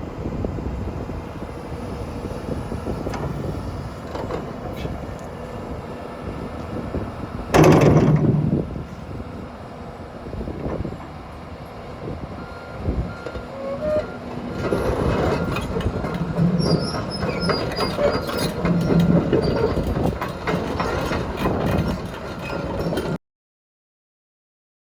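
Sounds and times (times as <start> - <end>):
excavator engine running: 0.1 - 23.2
steel tracks clanking and squealing: 6.6 - 9.1, 10.5 - 23.2.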